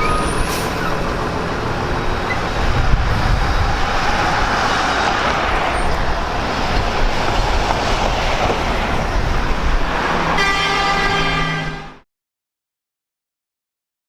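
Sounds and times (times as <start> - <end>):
vehicle engine and road noise: 0.0 - 12.0
car horn: 10.4 - 12.0.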